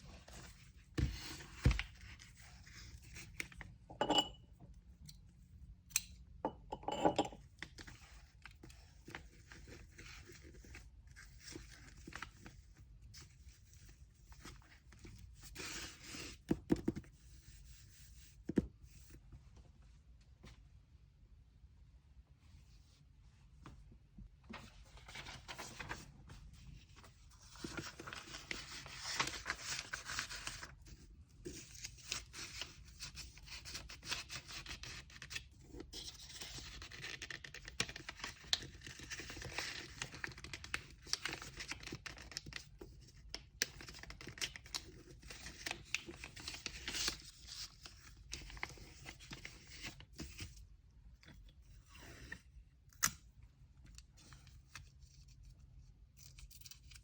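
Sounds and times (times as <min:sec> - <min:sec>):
paper rustling and tearing: 0:24.9 - 0:26.1, 0:27.4 - 0:30.7.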